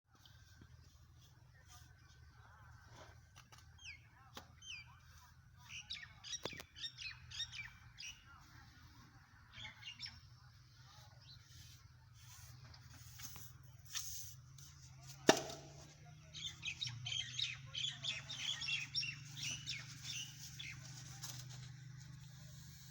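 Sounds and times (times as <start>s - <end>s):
small birds chirping: 0.1s - 22.9s
sharp knock: 15.3s - 15.9s.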